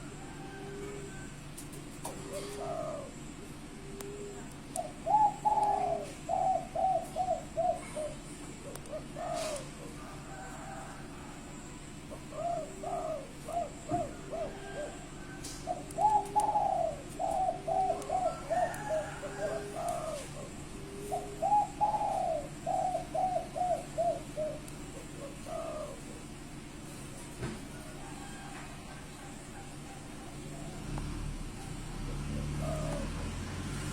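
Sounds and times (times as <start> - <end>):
dove cooing: 0.0 - 33.9.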